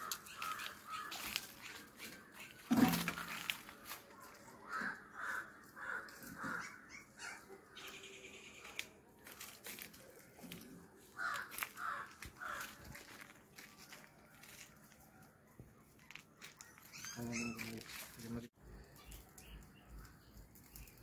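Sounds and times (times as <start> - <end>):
harsh bird calls: 0.0 - 3.5, 4.5 - 9.0, 11.0 - 13.2, 16.6 - 21.0.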